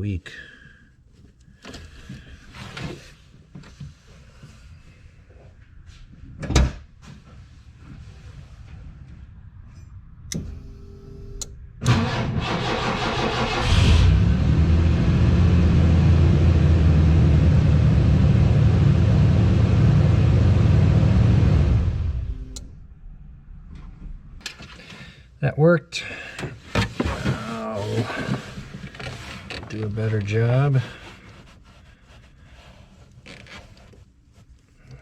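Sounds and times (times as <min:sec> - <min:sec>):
car engine running steadily: 0:10.3 - 0:12.3, 0:13.6 - 0:24.6
car engine cranking and starting: 0:10.3 - 0:24.8.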